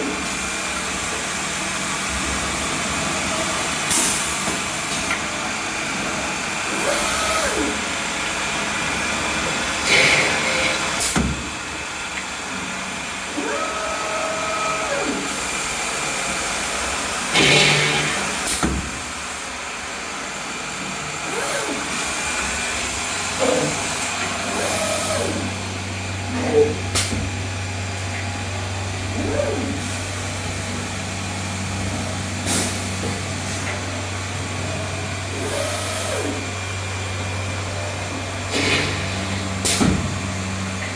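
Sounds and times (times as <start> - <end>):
motors whining in pitch: 6.7 - 7.9, 9.8 - 11.0, 17.1 - 18.6, 21.2 - 25.6.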